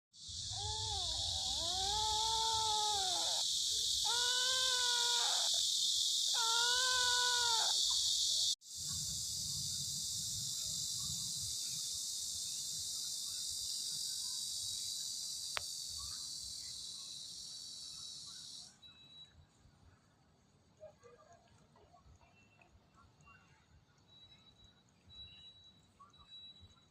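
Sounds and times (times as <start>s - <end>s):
insects chirring: 0.2s - 19.1s
kitten meowing: 0.6s - 3.4s, 4.1s - 5.5s, 6.4s - 7.8s.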